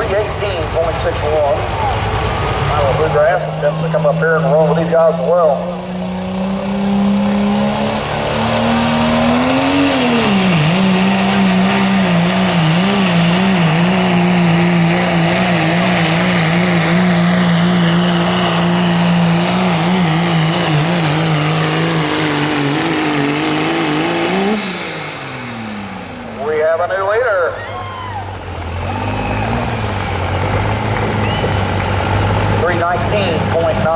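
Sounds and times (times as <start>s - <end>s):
truck engine at full throttle: 0.0s - 33.9s.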